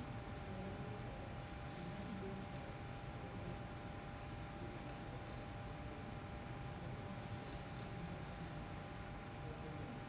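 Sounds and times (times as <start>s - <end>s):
faint constant hum: 0.0s - 10.0s.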